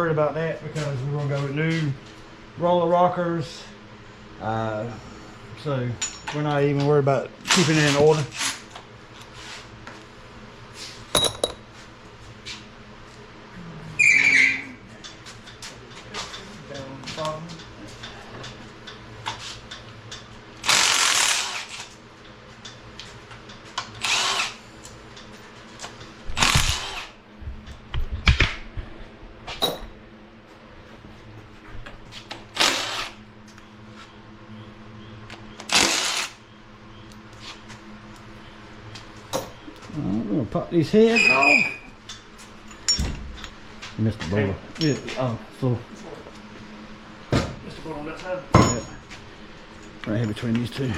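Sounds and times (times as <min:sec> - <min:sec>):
steady low hum: 0:00.0 - 0:50.9
power tool bursts: 0:20.6 - 0:21.9, 0:24.0 - 0:24.6, 0:26.4 - 0:27.2, 0:32.6 - 0:33.2, 0:35.7 - 0:36.4.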